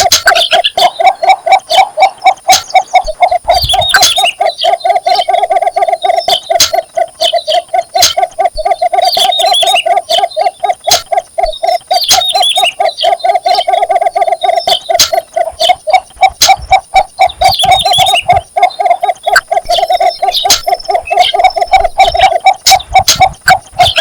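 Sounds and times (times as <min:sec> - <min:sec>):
bird chirping high: 0:00.0 - 0:24.0.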